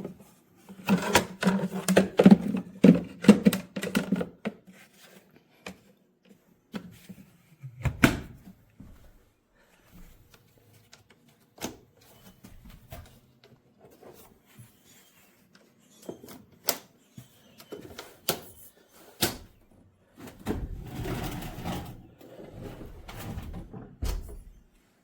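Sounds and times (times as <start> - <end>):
rustling and shuffling: 8.4 - 16.2.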